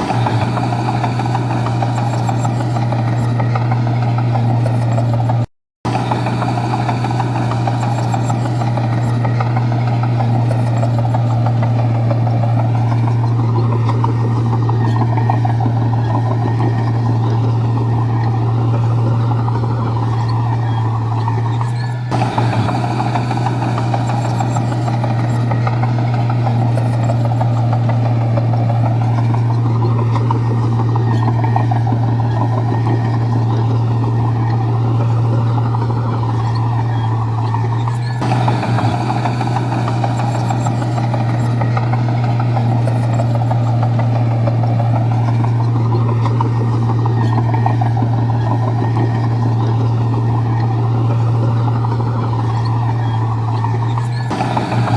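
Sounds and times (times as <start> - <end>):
bulldozer diesel engine running: 0.0 - 54.9.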